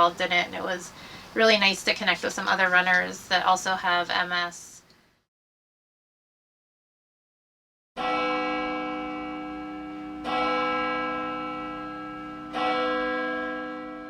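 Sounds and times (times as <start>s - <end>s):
bell ringing: 8.0s - 14.0s.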